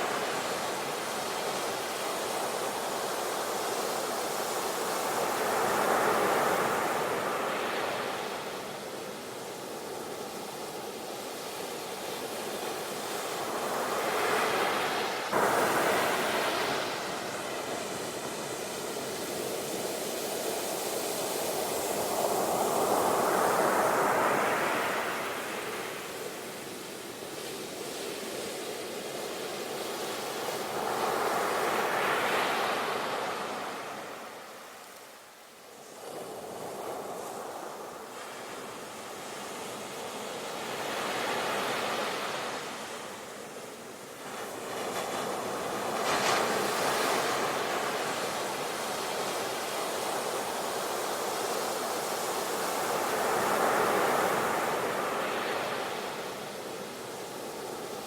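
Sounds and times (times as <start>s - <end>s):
sea waves breaking on shore: 0.0s - 34.8s.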